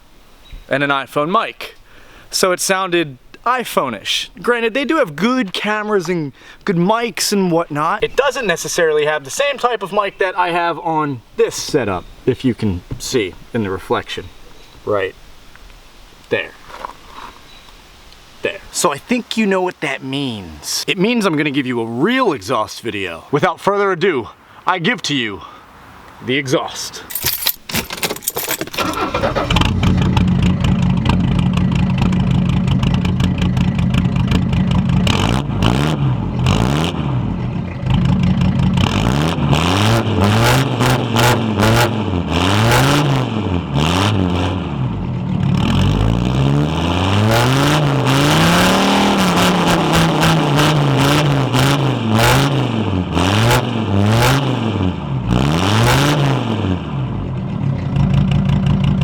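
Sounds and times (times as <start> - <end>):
diesel engine starting and idling: 27.8 - 40.2, 41.0 - 51.6, 56.2 - 59.0
diesel engine revving: 28.5 - 59.0.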